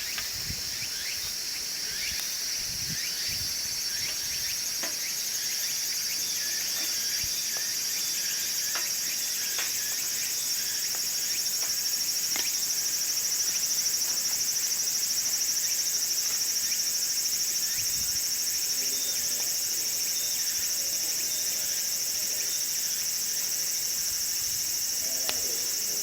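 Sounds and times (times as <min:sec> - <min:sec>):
insects trilling: 0:00.0 - 0:26.0
wood crackling in a stove: 0:06.4 - 0:14.6, 0:23.9 - 0:26.0.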